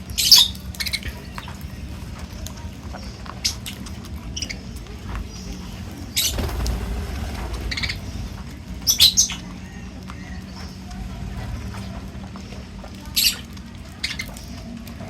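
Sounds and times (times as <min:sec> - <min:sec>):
birds squeaking and chirping: 0:00.0 - 0:15.0
steady low hum: 0:00.0 - 0:15.0.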